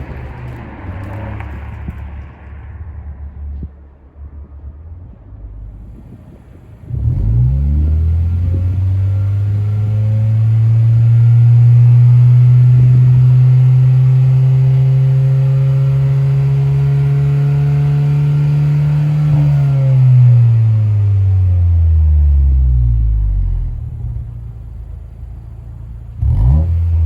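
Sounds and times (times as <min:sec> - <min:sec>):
car exhaust note at steady revs: 0:05.6 - 0:27.0.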